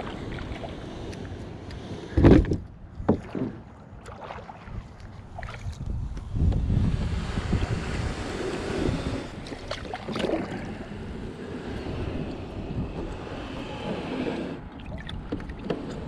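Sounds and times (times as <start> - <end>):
waves lapping at shore: 0.0 - 2.4, 3.1 - 16.0
wind buffeting microphone: 4.5 - 16.0.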